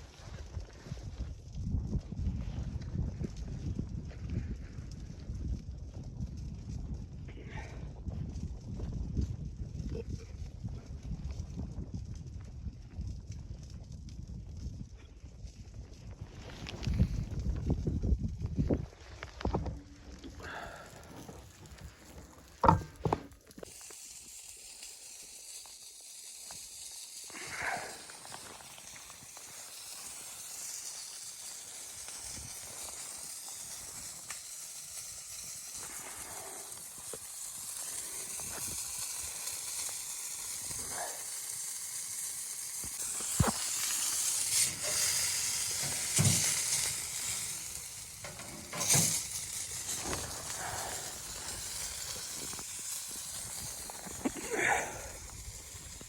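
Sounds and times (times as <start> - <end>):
food sizzling in a pan: 20.2 - 56.0
knocks and clatters: 22.6 - 23.4.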